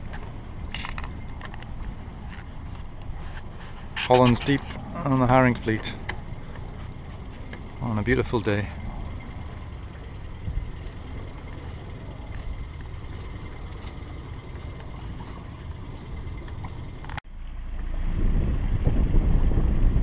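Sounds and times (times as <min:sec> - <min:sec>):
boat engine running: 0:00.0 - 0:20.0
wind: 0:00.0 - 0:20.0.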